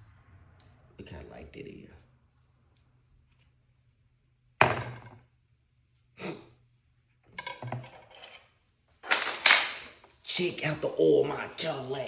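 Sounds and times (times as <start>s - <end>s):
metal parts clinking: 7.4s - 10.0s
metal tools clanking: 7.4s - 10.1s.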